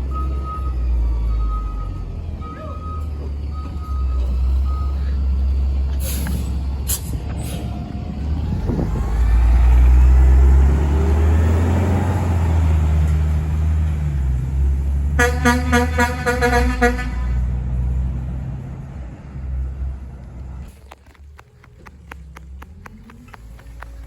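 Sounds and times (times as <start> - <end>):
garbage truck diesel engine revving: 0.0 - 20.0
reversing beeps: 0.1 - 5.3.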